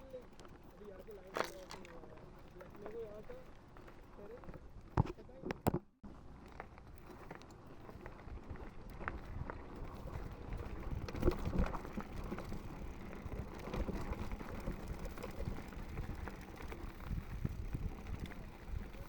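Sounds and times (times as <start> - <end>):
bike tyres rolling over rocks: 0.0 - 5.2, 6.2 - 19.0
bike rattling and knocking: 7.8 - 19.0.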